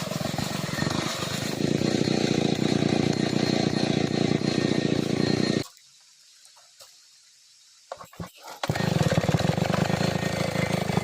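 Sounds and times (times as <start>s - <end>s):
chainsaw running: 0.0s - 5.6s, 8.5s - 11.0s.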